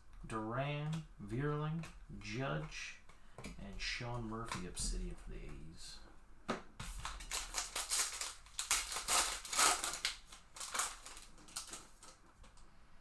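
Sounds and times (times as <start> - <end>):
card pack wrapper tearing and crinkling: 7.0 - 12.3.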